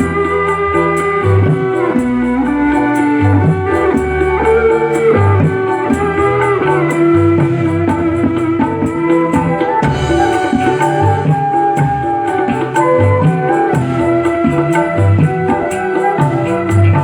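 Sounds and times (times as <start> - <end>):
moving bass line: 0.0 - 17.0
plucked-string melody: 0.0 - 17.0
steady ticking beat: 9.4 - 17.0.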